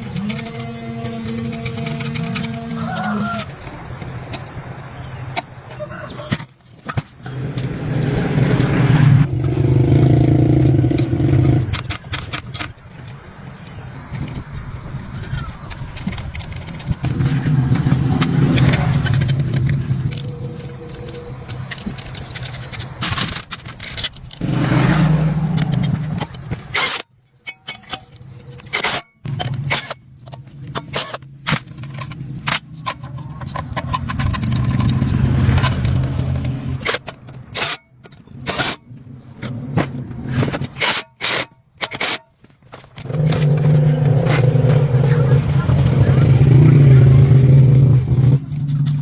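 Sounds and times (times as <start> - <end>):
scattered clicks: 15.0 - 24.4.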